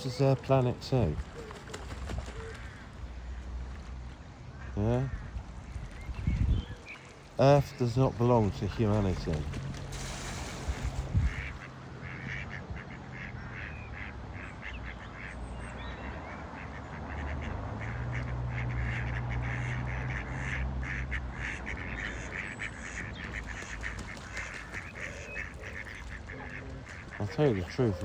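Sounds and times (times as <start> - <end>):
ducks quacking: 4.6 - 6.0, 7.0 - 15.4, 16.0 - 28.0.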